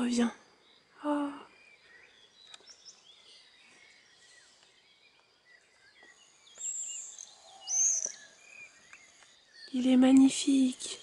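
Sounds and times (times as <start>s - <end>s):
songbirds chirping: 0.0s - 11.0s
loud high-pitched bird calls: 5.7s - 11.0s.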